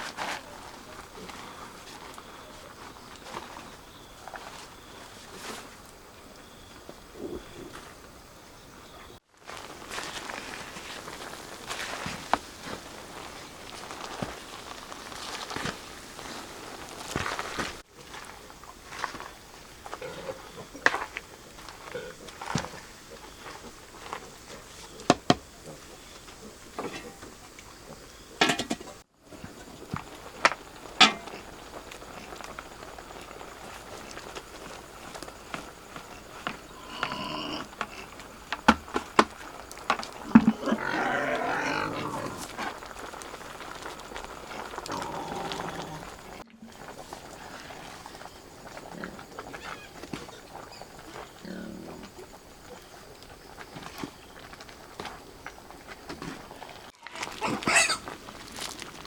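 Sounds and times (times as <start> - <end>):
rustling: 0.0 - 8.2, 9.2 - 59.0
faint steady hiss: 0.0 - 59.0
farm animals calling: 40.2 - 46.4, 56.6 - 58.8.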